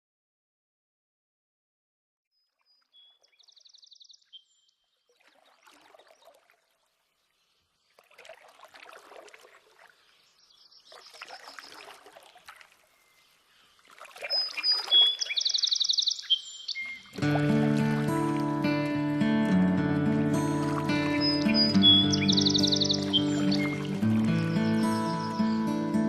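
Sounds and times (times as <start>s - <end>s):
small birds chirping and trilling: 2.3s - 8.3s, 9.7s - 18.0s, 20.6s - 26.0s
paddle swishing through water: 4.9s - 25.7s.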